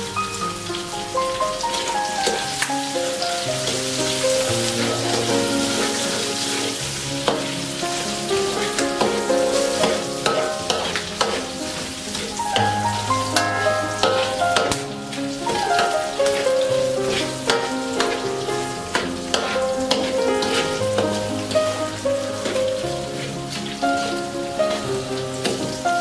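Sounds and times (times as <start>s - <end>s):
background music: 0.0s - 26.0s
food sizzling in a wok: 0.0s - 26.0s
spatula stirring and scraping: 4.8s - 12.7s, 15.5s - 21.5s.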